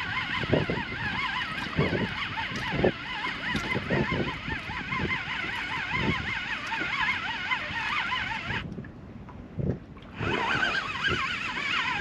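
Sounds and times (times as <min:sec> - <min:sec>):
fishing reel gear whine: 0:00.0 - 0:08.7, 0:10.0 - 0:12.0.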